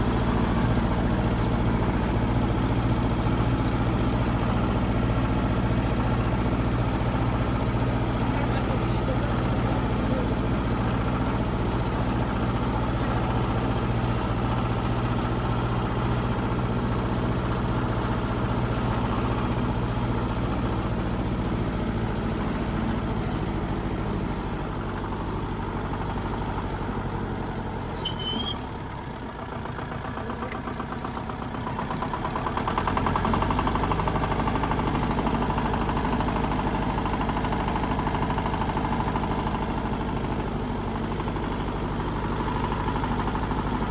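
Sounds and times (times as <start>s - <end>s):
diesel engine of heavy machine running: 0.0s - 43.9s
brief squeak: 27.8s - 28.8s.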